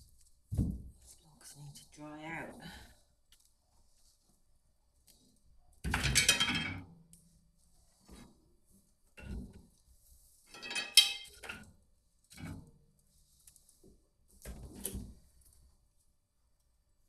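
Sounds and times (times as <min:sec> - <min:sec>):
hard objects clattering and knocking: 0:05.9 - 0:06.8, 0:10.5 - 0:11.7.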